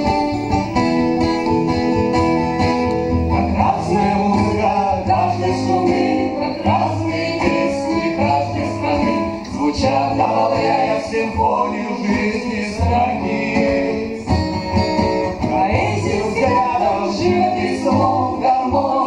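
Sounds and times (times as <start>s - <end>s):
acoustic guitar playing: 0.0s - 19.0s
person singing: 3.2s - 19.0s.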